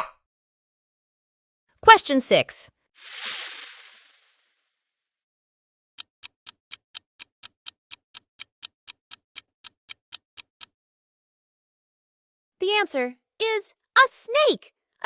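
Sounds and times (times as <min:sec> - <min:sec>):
clock ticking: 0:06.0 - 0:10.7.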